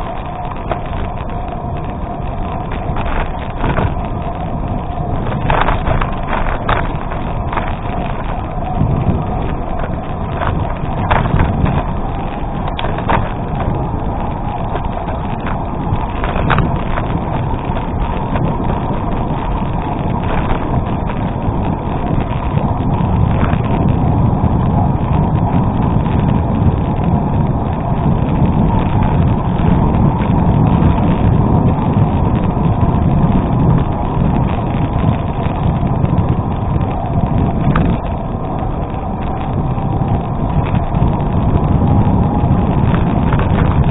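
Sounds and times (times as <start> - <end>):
tyres rolling over gravel: 0.0 - 43.9
wind rushing over microphone: 0.0 - 43.9
clicks and rattles from stones: 2.6 - 21.2.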